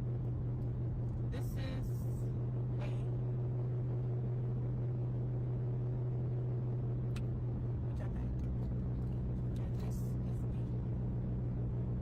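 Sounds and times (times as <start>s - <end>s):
car cabin drone: 0.0s - 12.0s.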